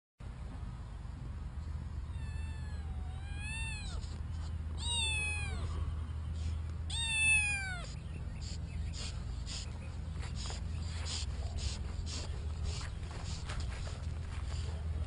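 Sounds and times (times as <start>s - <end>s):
steady low hum: 0.2s - 15.0s
cat meowing: 2.1s - 4.1s, 4.8s - 5.7s, 6.9s - 8.0s.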